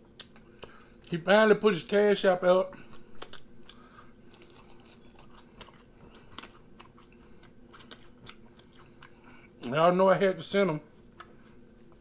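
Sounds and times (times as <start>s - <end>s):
person chewing: 0.1s - 1.1s, 2.8s - 9.8s, 10.9s - 12.0s.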